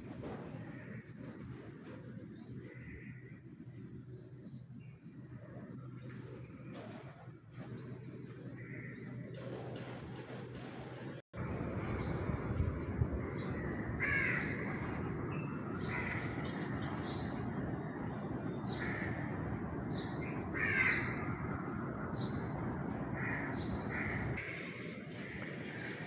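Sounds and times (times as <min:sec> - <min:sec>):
birds calling: 0:11.7 - 0:26.0.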